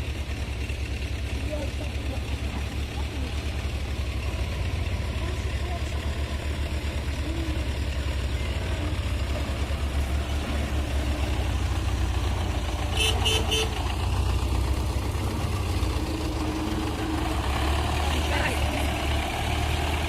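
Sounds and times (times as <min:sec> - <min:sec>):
tractor engine droning: 0:00.0 - 0:20.0
short horn toots: 0:12.9 - 0:13.8.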